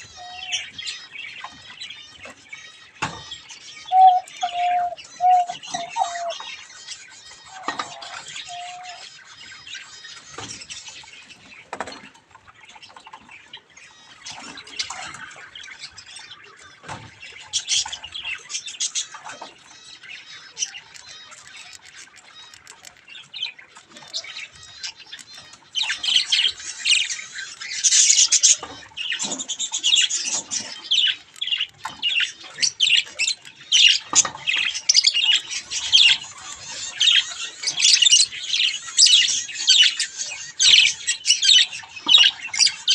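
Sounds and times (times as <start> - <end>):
budgerigars chattering and squawking: 0.0 - 42.9.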